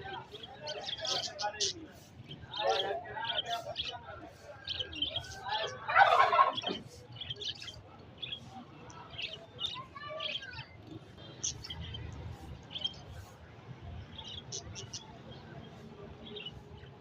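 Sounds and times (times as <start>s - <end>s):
budgerigars chirping: 0.7s - 4.0s, 14.1s - 15.4s.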